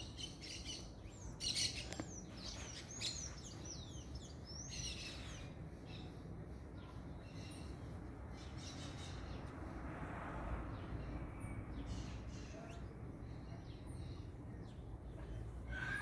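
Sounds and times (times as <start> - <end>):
small birds chirping: 0.0 - 9.9, 10.6 - 16.0.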